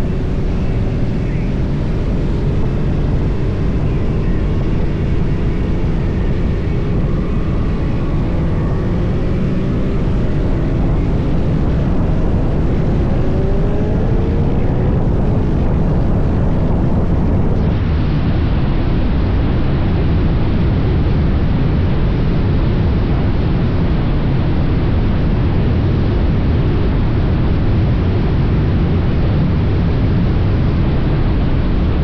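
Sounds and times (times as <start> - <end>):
motorcycle engine: 0.0 - 17.8
wind noise on microphone: 0.0 - 32.0.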